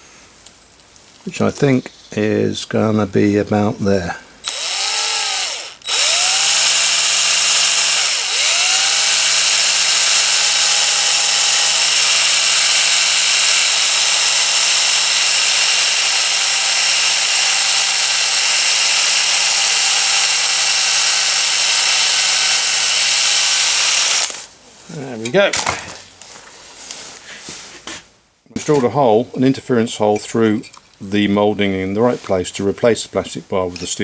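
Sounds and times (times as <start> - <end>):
electric drill drilling plastic: 4.4 - 24.5.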